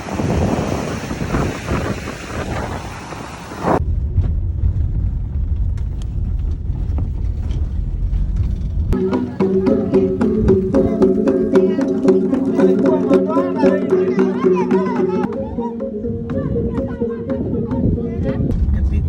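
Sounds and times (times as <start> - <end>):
wind noise on microphone: 0.0 - 9.0, 15.2 - 19.0
low rumble: 3.8 - 13.2, 15.2 - 19.0
surf: 9.0 - 16.4
music with percussive strikes: 9.0 - 18.6.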